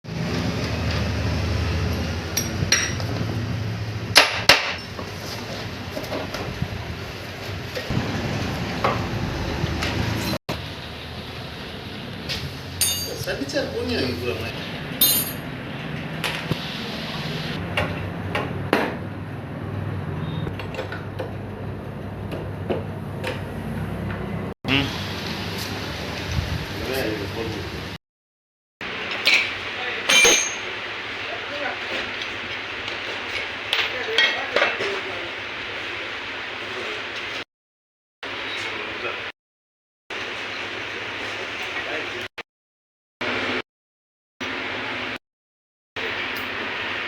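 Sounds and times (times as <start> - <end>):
metallic clinks and knocks: 12.8 - 13.3, 30.1 - 30.7.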